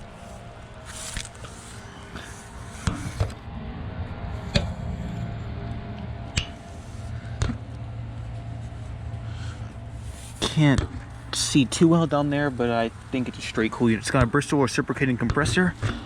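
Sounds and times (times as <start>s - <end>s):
air conditioner unit humming: 0.0s - 16.0s.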